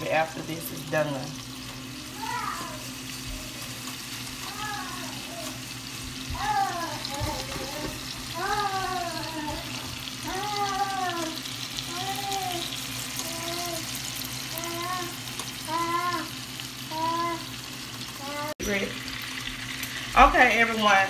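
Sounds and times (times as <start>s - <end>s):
meat sizzling in a skillet: 0.0s - 21.0s
baby cooing: 6.4s - 13.9s.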